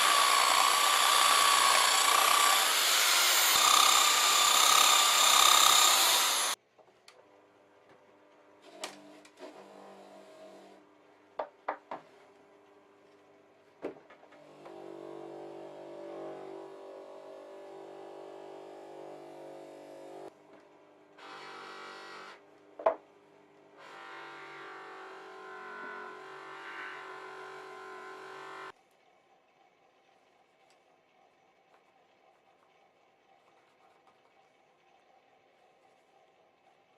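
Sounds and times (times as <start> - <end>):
small electric power tool running: 0.0 - 6.6, 23.8 - 28.7.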